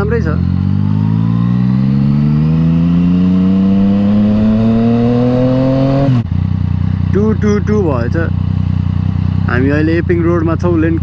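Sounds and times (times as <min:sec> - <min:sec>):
motorcycle engine accelerating: 0:00.0 - 0:07.2.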